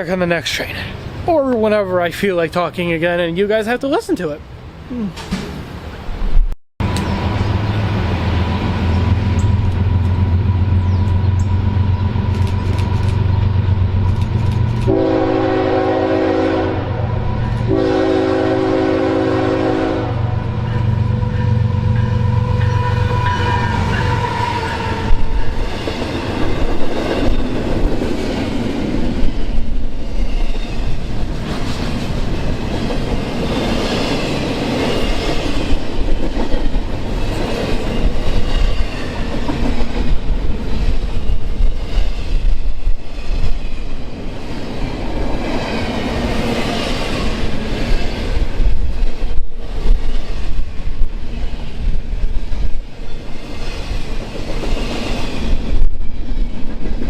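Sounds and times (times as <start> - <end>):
train rumble: 5.1 - 57.0
high wheel squeal: 21.4 - 25.7.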